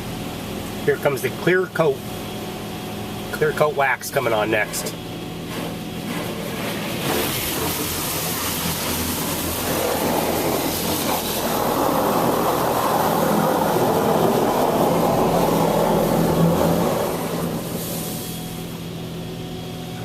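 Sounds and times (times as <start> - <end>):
machine low hum: 0.0 - 20.0
hiss of spray: 7.0 - 18.7.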